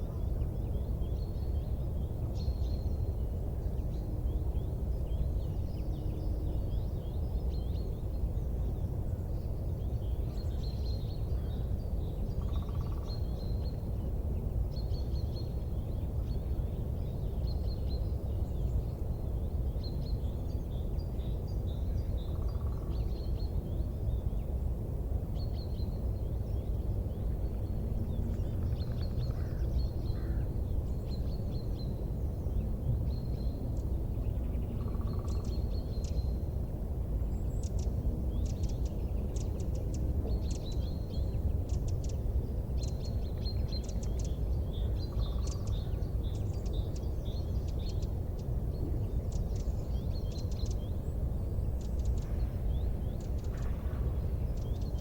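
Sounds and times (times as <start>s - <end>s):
steady low rumble: 7.5s - 55.0s
small birds chirping: 25.4s - 55.0s.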